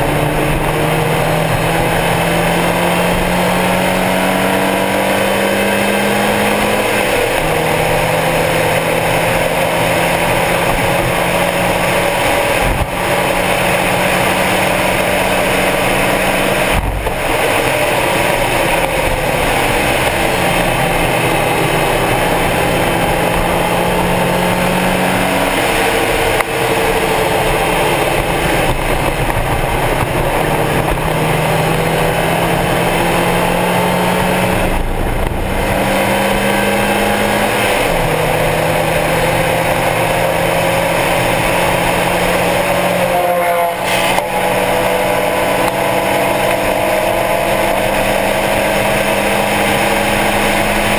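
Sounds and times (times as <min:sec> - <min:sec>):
car engine revving: 0:00.0 - 0:50.9.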